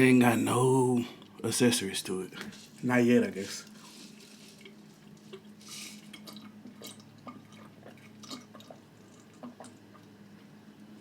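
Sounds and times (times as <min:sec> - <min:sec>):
faint low hum: 0:00.0 - 0:11.0
wet chewing and lip-smacking: 0:04.4 - 0:10.6.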